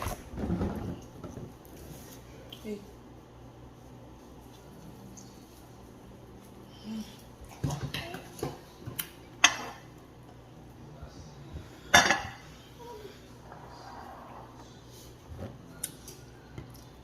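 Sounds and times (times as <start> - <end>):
dishes and cutlery clattering: 11.9 - 12.5.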